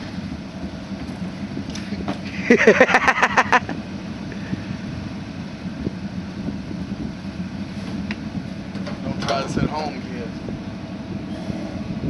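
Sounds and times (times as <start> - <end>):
low hum: 0.0 - 12.0
rapid engine pops: 7.8 - 9.9
tractor engine cranking: 7.8 - 10.5.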